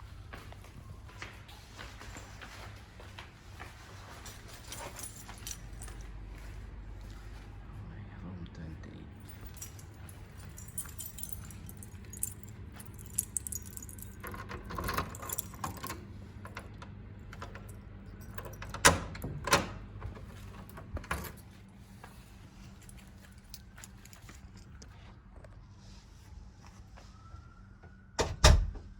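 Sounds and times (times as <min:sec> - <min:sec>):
low steady hum: 0:00.0 - 0:28.9
keys jangling: 0:04.0 - 0:06.2, 0:09.2 - 0:21.7, 0:22.6 - 0:24.8.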